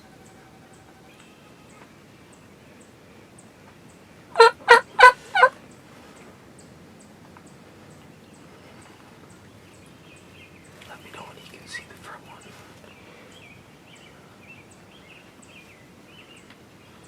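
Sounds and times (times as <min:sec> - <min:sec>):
turkey gobbling: 0:04.4 - 0:05.6.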